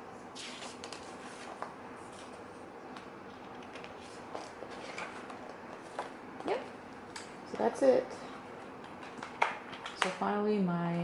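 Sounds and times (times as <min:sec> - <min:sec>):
rustling of paper booklet: 0:00.4 - 0:02.6, 0:03.3 - 0:06.2.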